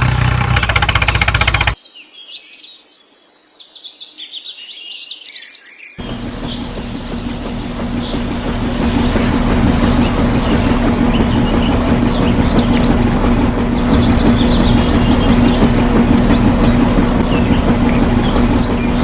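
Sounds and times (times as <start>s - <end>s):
birds chirping: 6.0s - 19.0s
constant rumbling: 6.0s - 19.0s
low mechanical hum: 6.0s - 19.0s.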